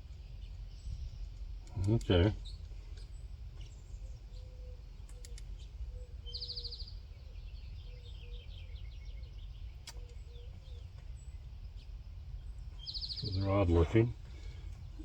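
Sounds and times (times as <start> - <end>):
birds chirping: 0.0 - 15.0
low outdoor rumble: 0.0 - 15.0
faint sharp clicks: 1.3 - 3.7, 5.0 - 5.6, 9.8 - 10.2.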